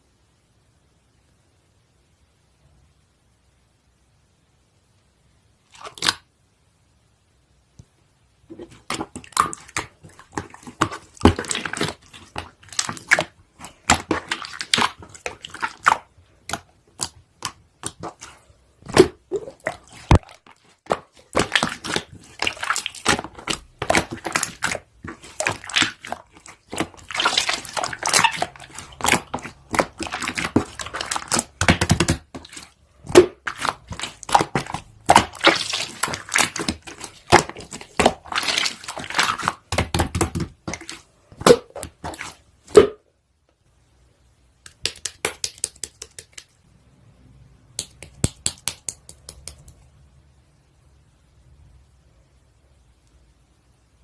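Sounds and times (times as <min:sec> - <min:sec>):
crinkling and crunching: 0:08.5 - 0:42.4.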